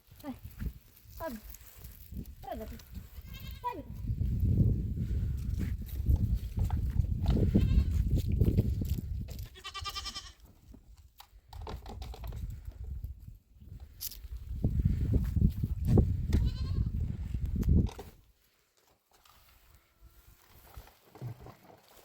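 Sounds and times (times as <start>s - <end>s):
goat bleating: 2.9s - 3.7s, 7.4s - 8.0s, 9.5s - 10.4s, 16.4s - 16.9s.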